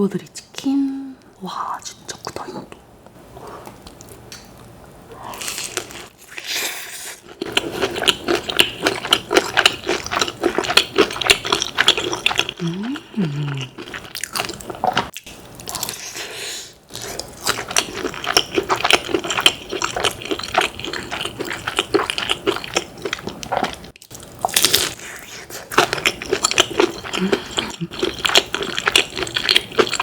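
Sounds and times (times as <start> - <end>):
mouth sounds: 12.5 - 13.9
crunching fried chicken: 17.0 - 30.0.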